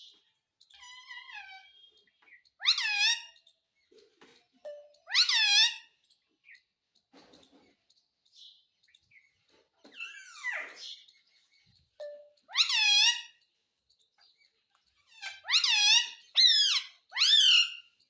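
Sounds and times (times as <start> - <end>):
soft parrot chatter: 0.0 - 18.0
parrot squawking: 0.8 - 1.9, 2.6 - 3.4, 5.0 - 6.0, 10.0 - 10.9, 12.1 - 13.4, 15.1 - 17.9.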